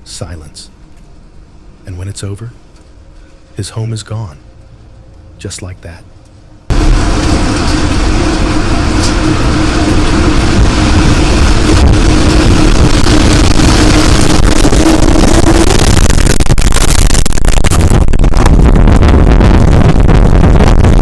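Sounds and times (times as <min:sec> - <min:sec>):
steady droning tone: 0:00.0 - 0:21.0
tornado wind roaring: 0:06.4 - 0:21.0.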